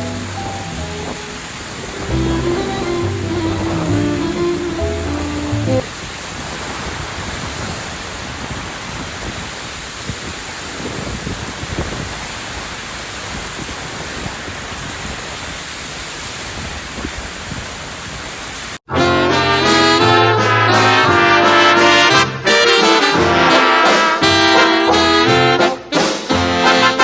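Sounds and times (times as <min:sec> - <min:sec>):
brass music: 0:00.0 - 0:05.8, 0:18.9 - 0:27.0
heavy rain: 0:00.0 - 0:27.0.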